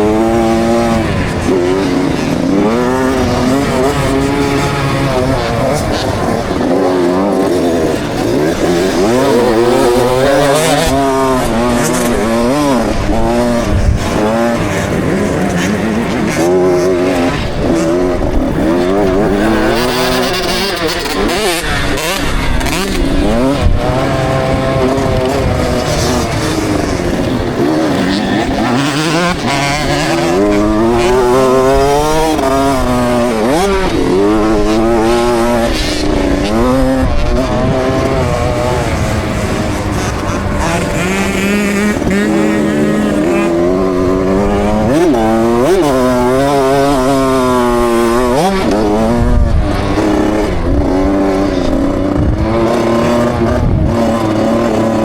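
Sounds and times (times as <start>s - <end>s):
two-stroke motocross engine revving: 0.0s - 55.0s.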